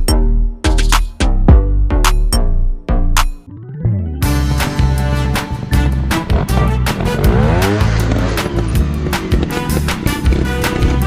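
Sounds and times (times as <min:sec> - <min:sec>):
background music: 0:00.0 - 0:11.0
dirt bike engine revving: 0:05.3 - 0:11.0.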